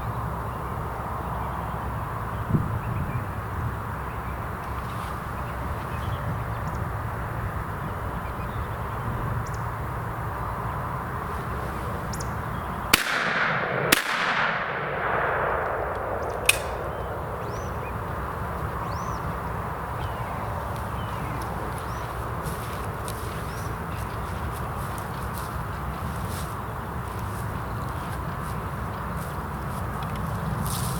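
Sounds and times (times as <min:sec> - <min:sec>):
low outdoor background noise: 0:00.0 - 0:30.9
shotgun shots with echo: 0:12.9 - 0:19.1
sharp crack: 0:12.9 - 0:19.4.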